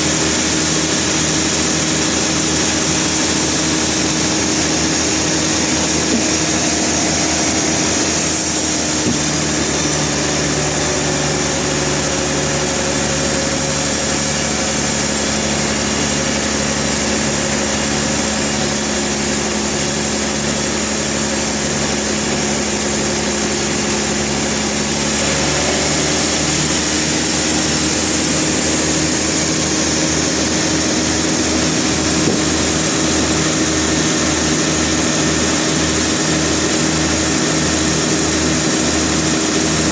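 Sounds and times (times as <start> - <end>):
sawmill machinery hum: 0.0 - 39.9.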